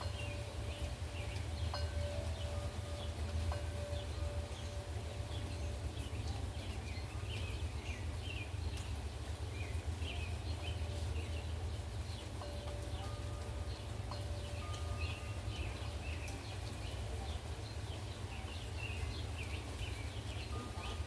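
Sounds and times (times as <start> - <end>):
wind chime ringing: 0.0 - 7.2, 12.1 - 17.5, 19.8 - 21.0
birds chirping: 0.0 - 21.0
rain hiss: 0.0 - 21.0.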